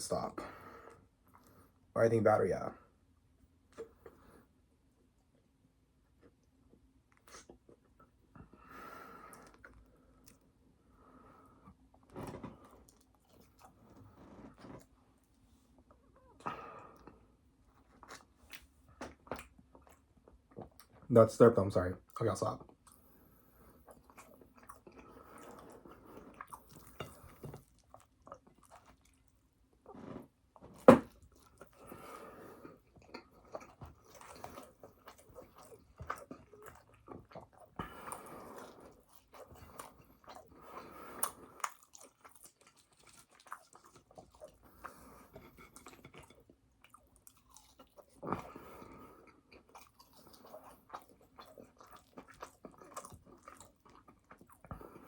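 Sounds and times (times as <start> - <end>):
chewing and biting food: 12.0 - 15.3, 17.0 - 21.1, 22.6 - 55.0.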